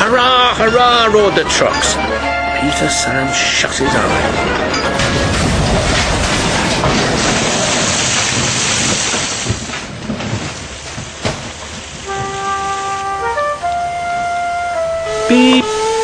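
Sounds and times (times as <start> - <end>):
held musical notes: 0.0 - 6.5, 12.0 - 16.0
trucks crashing: 0.0 - 15.2
knocks of falling pieces: 3.8 - 12.8.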